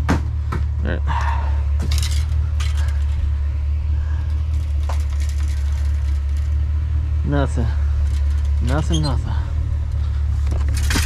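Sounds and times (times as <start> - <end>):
low rumble: 0.0 - 11.0
junk clattering in a dumpster: 7.8 - 11.0.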